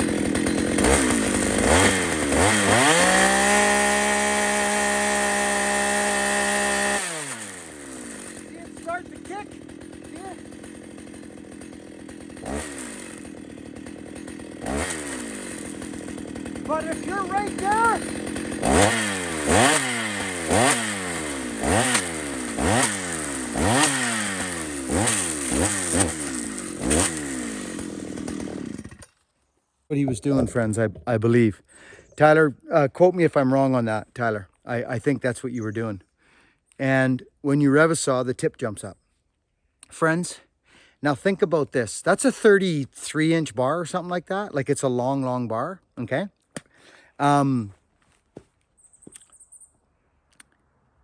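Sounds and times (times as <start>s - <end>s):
chainsaw engine revving: 0.0s - 29.2s.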